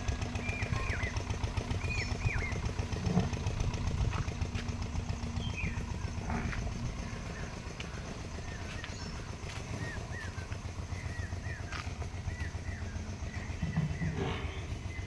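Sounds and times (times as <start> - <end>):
engine pulsing rumble: 0.0 - 15.0
small birds chirping: 0.0 - 15.0.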